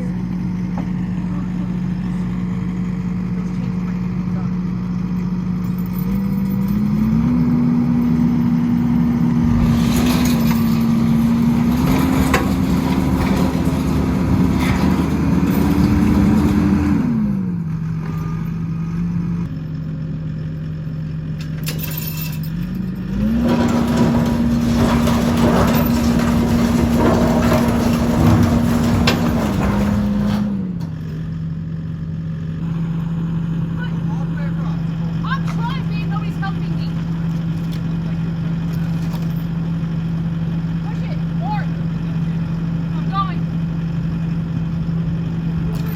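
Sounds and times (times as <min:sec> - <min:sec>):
skid steer engine revving: 0:00.0 - 0:19.5, 0:22.6 - 0:31.5.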